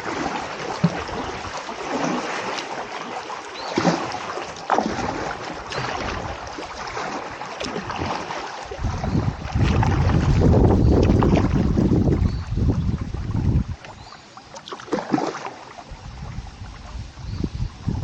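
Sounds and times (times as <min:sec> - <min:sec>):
kayak paddle splashing in water: 0:00.0 - 0:17.3
wind buffeting microphone: 0:07.9 - 0:14.0, 0:15.9 - 0:18.0.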